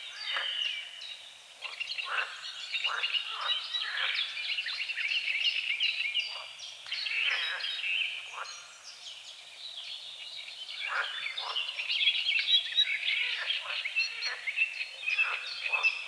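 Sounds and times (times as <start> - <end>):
frogs croaking: 0.1 - 1.0, 1.6 - 5.2, 10.8 - 11.9, 12.5 - 16.0.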